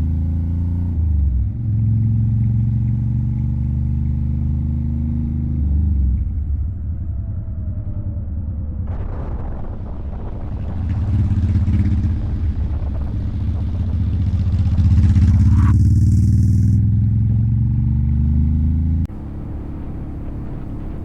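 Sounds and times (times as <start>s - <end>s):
motorcycle engine revving: 10.2s - 21.0s.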